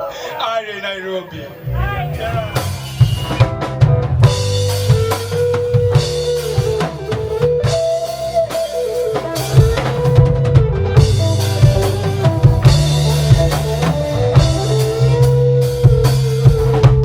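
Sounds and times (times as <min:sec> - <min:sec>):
reggae band playing: 0:00.0 - 0:17.0
deep bass line: 0:01.5 - 0:17.0
held melodic line: 0:01.6 - 0:17.0
drum kit kicks and rimshots: 0:01.9 - 0:17.0.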